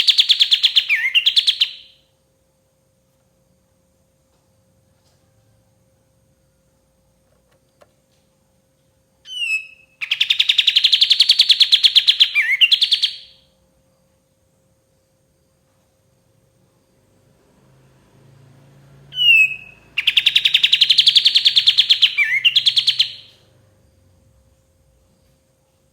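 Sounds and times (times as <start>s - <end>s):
bird rattling trill: 0.0s - 2.0s, 10.0s - 13.4s, 19.1s - 23.4s
bulbul calling: 0.0s - 2.0s, 9.3s - 13.4s, 19.1s - 23.5s
faint steady hum: 0.0s - 25.9s.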